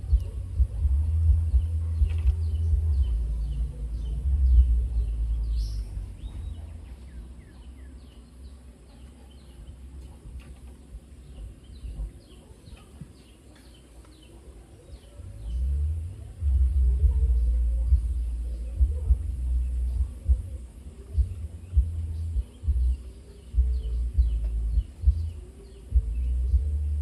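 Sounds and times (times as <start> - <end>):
low rumble: 0.0 - 8.7, 15.2 - 27.0
small birds chirping: 0.0 - 27.0.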